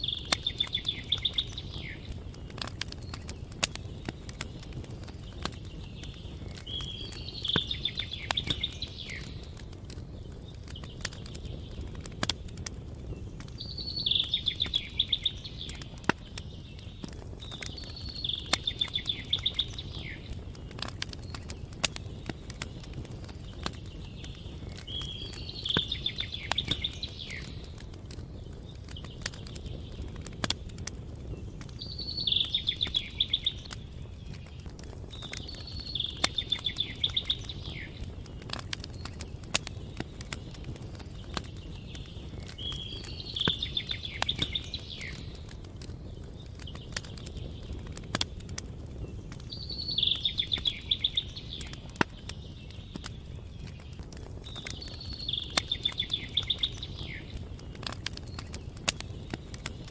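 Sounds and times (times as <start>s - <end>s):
songbird singing trilled phrase: 0.0s - 2.1s, 17.6s - 20.3s, 31.8s - 33.7s, 35.2s - 38.0s, 41.6s - 45.3s, 49.5s - 53.5s, 54.4s - 58.5s
campfire crackling: 0.0s - 59.9s.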